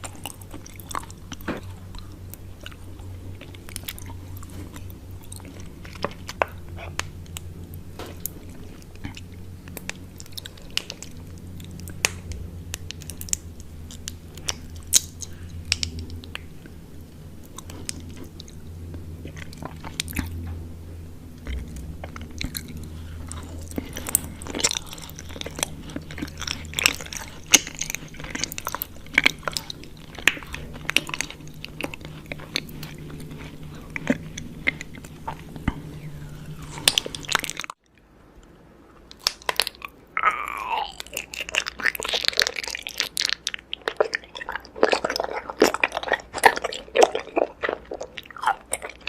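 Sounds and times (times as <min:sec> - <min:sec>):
person chewing honeycomb: 0:00.0 - 0:49.0
steady low hum: 0:00.0 - 0:49.0.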